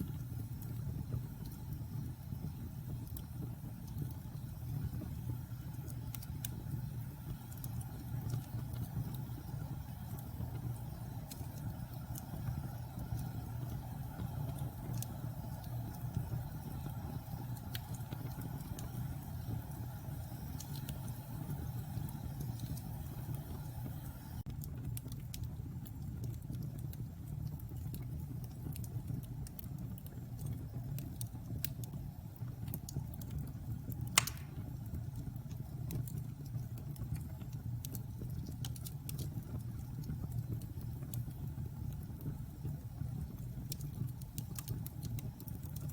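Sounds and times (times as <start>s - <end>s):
wood fire crackling: 0.0s - 45.9s
loud pop from fire: 34.2s - 34.7s.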